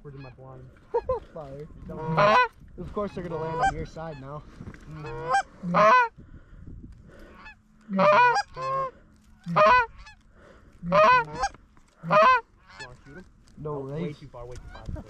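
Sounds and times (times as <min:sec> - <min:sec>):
goose honking: 0:00.0 - 0:01.2, 0:01.8 - 0:04.3, 0:04.9 - 0:06.1, 0:07.3 - 0:10.2, 0:10.8 - 0:13.2.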